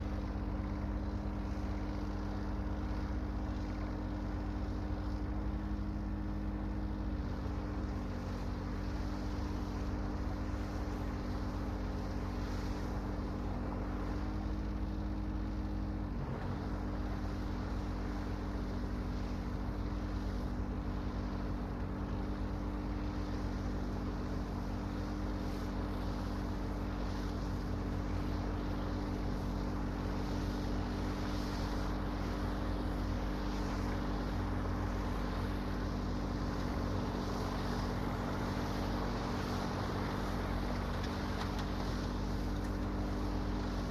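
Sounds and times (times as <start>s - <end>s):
tractor engines running: 18.6s - 43.9s.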